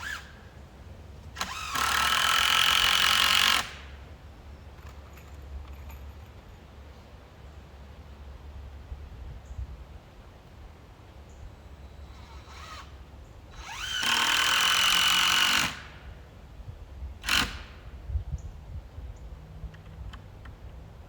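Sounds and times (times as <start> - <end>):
power drill whining: 0.0 - 0.4, 1.4 - 3.8, 12.1 - 16.0, 17.2 - 17.8.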